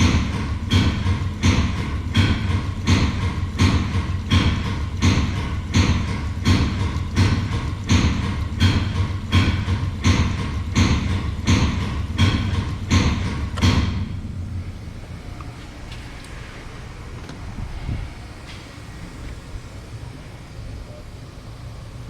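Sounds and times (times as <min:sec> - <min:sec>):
oil pump knocking: 0:00.0 - 0:14.4
steady pump hum: 0:00.0 - 0:22.0.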